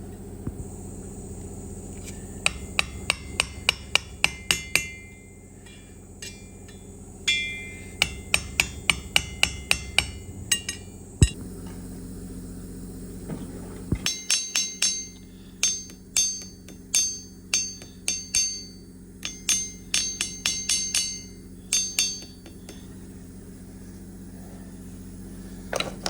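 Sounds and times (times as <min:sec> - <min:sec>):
steady low hum: 0:00.0 - 0:26.0
hammer tapping on metal: 0:02.4 - 0:11.4, 0:14.1 - 0:22.9.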